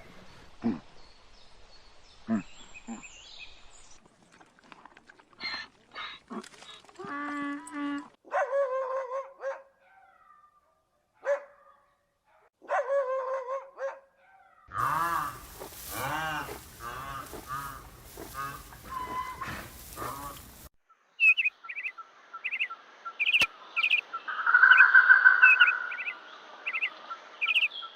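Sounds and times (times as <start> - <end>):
dog barking: 8.3 - 10.4, 11.2 - 14.6
loud drawn-out animal calls: 14.7 - 20.7
birds chirping: 14.8 - 27.9.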